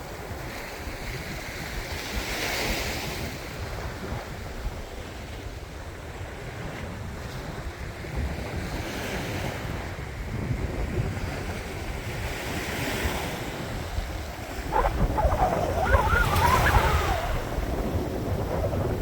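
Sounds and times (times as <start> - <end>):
wind rumbling on microphone: 0.0 - 19.0
sea waves breaking on beach: 11.1 - 19.0.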